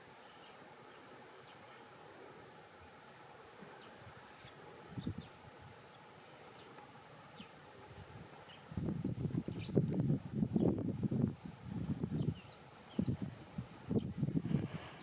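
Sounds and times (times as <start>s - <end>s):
insect trill: 0.2s - 15.0s.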